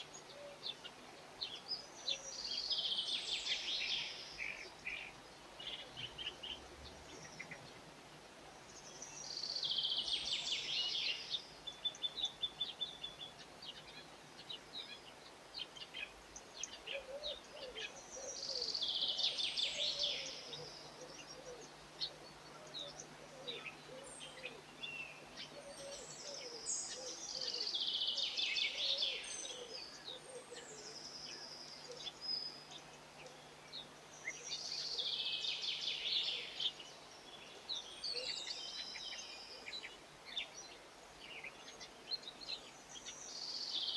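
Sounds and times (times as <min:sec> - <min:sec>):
songbird singing: 0:00.0 - 0:43.9
faint bird chirps: 0:14.6 - 0:43.9.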